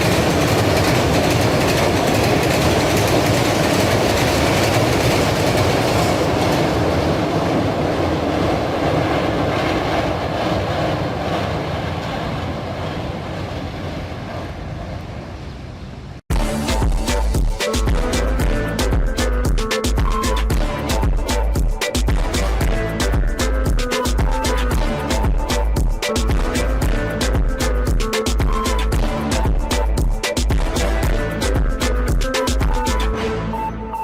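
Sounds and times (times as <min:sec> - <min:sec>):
train wheels clickety-clack: 0:00.0 - 0:14.6.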